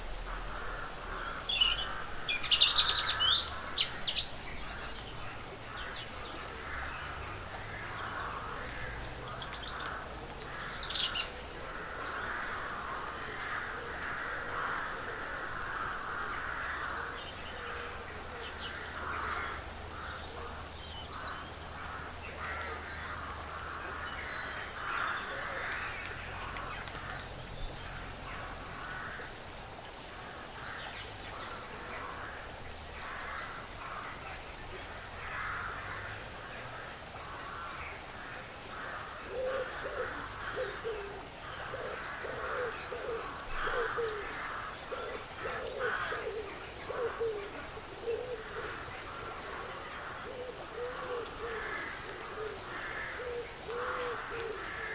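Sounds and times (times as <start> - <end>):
birds chattering: 36.8 - 54.9.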